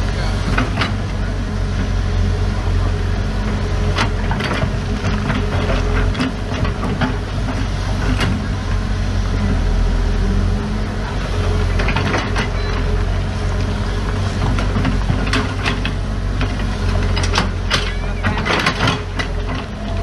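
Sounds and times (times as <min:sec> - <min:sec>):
diesel engine drone: 0:00.0 - 0:20.0
metallic clanks and knocks: 0:00.5 - 0:01.1, 0:11.7 - 0:12.9, 0:14.4 - 0:20.0.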